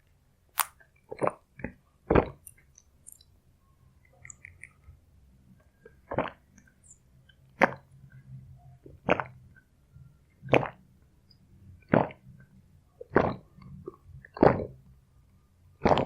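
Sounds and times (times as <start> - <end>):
person gulping a drink: 1.0 - 3.2, 5.9 - 6.7, 7.6 - 7.9, 9.0 - 9.4, 10.5 - 10.8, 11.8 - 12.3, 13.0 - 14.8, 15.8 - 16.0
wet mouth clicks: 4.1 - 4.8.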